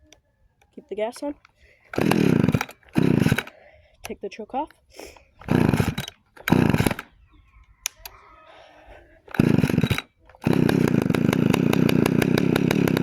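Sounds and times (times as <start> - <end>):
chainsaw starter cord pulls: 1.1 - 7.2, 7.8 - 8.2, 9.2 - 13.0
chainsaw engine running: 1.8 - 3.6, 5.4 - 7.2, 9.2 - 13.0.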